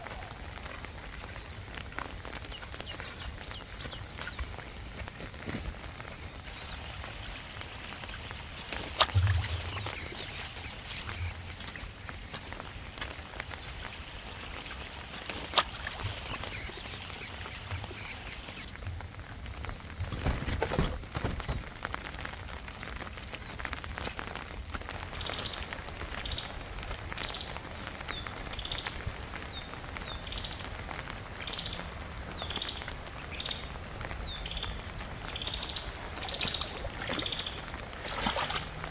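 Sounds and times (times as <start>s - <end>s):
rain hissing: 0.0s - 20.0s
bird lower chirps: 8.9s - 13.8s, 15.4s - 18.7s
bird high repeated notes: 9.0s - 12.6s, 13.5s - 13.8s, 15.5s - 15.7s, 16.3s - 18.7s.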